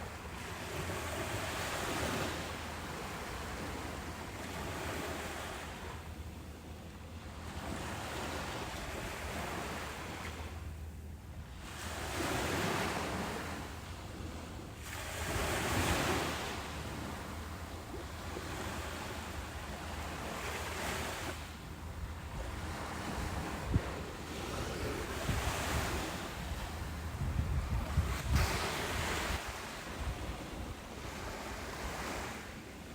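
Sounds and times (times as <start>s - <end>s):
ocean surf breaking on a beach: 11.6s - 32.9s.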